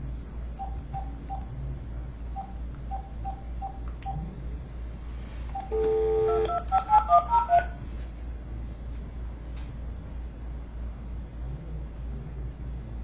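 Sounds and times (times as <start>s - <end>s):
telephone dial tone: 5.6s - 6.8s.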